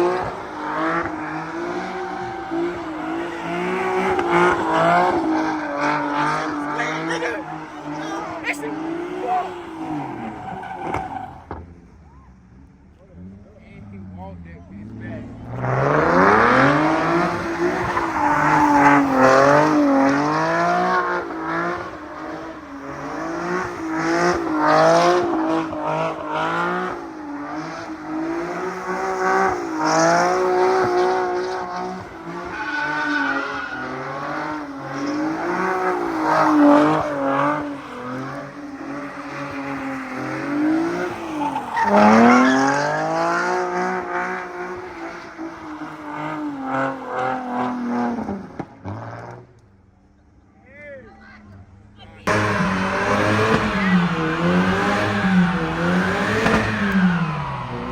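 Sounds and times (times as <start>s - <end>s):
car engine revving: 0.0s - 50.2s, 51.5s - 57.9s
tyres squealing: 16.3s - 20.1s, 37.9s - 43.4s.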